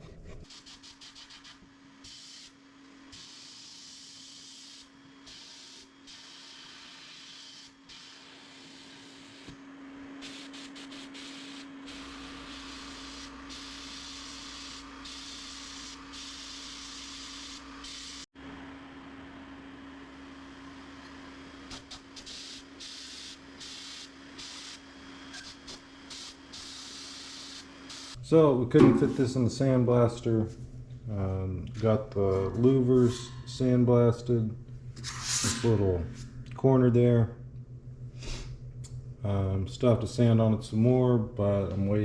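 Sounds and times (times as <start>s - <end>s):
sandblaster nozzle hissing: 10.2s - 18.3s, 22.0s - 28.2s
steady hum: 25.4s - 42.0s.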